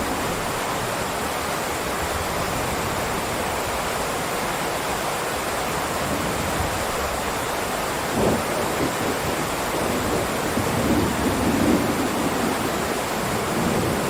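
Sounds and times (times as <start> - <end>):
heavy rain: 0.0 - 14.0.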